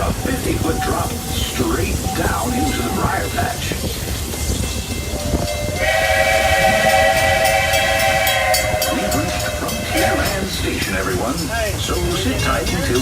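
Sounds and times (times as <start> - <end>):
moving train rumble: 0.0 - 13.0
steam whistle blast: 5.2 - 10.4.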